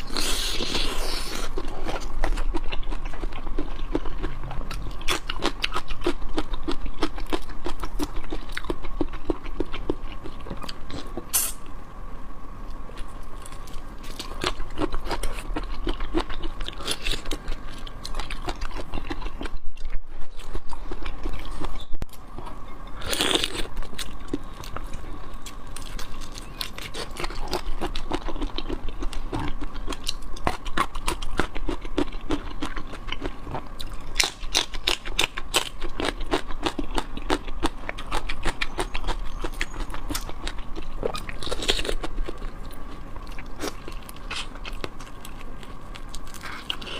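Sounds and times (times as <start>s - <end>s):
crunching and chewing seafood: 0.0s - 11.7s, 12.6s - 46.9s.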